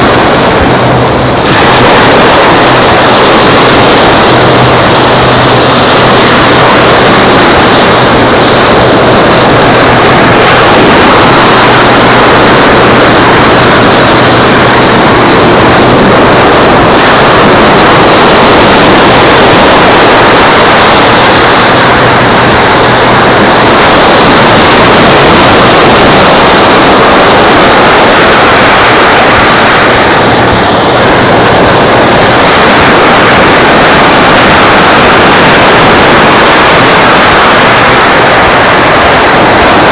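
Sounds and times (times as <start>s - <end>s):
surf rushing: 0.0s - 39.9s
wind: 0.0s - 39.9s.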